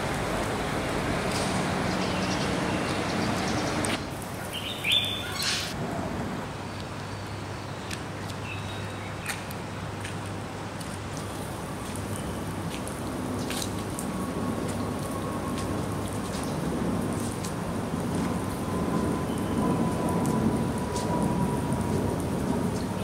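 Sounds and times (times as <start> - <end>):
traffic-like rush: 0.0 - 23.0
bird chirps: 1.9 - 5.7.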